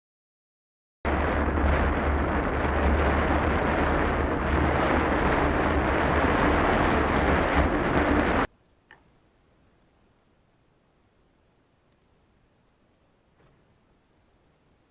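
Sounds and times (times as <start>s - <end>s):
vehicle driving rumble: 1.1s - 8.5s
wind buffeting microphone: 1.1s - 8.5s.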